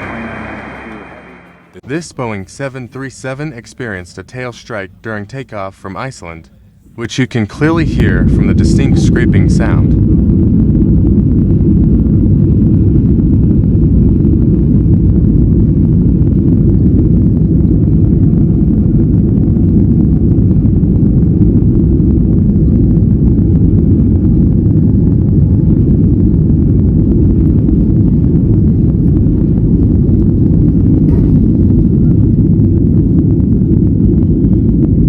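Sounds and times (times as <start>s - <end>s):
jet engines rumbling: 0.0s - 35.0s.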